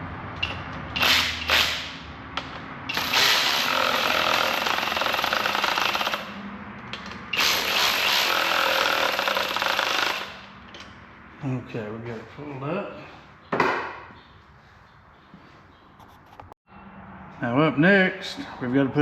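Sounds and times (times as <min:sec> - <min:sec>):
cordless power tool running: 0:02.9 - 0:06.4, 0:07.4 - 0:10.4.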